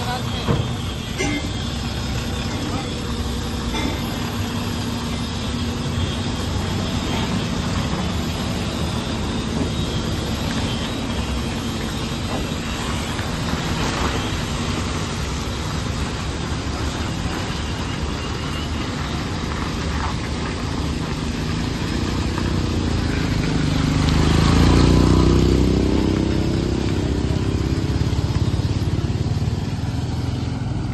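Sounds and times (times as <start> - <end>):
diesel air compressor running: 0.0 - 18.5.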